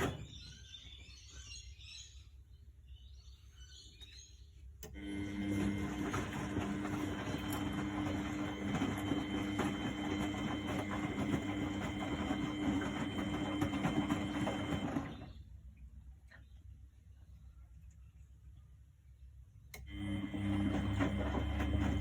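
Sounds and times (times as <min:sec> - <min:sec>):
washing machine churning: 0:00.0 - 0:00.6, 0:04.8 - 0:15.6, 0:19.8 - 0:22.0.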